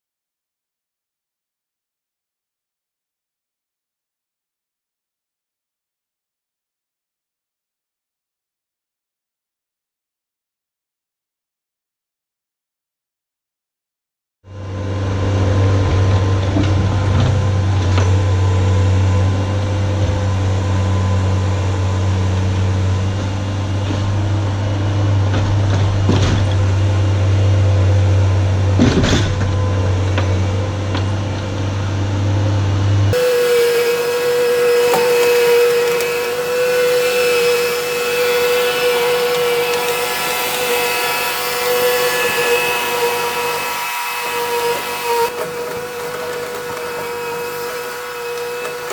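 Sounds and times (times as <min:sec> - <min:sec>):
skid steer engine humming: 0:14.5 - 0:48.9
machine whine: 0:33.2 - 0:48.9.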